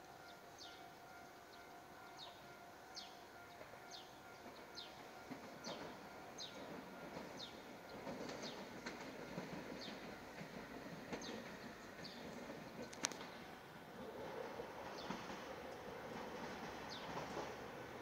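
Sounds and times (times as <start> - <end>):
train rumble: 0.0 - 18.0
bird chirping: 0.2 - 8.7.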